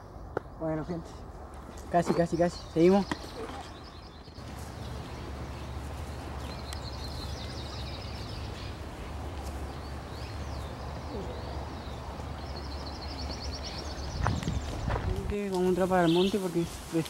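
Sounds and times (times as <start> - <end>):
small birds singing: 0.0 - 17.0.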